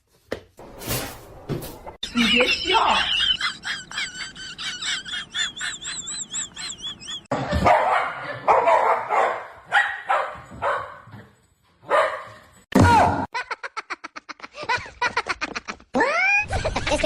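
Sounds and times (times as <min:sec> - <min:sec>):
dog barking: 0:07.6 - 0:11.2, 0:11.8 - 0:12.4.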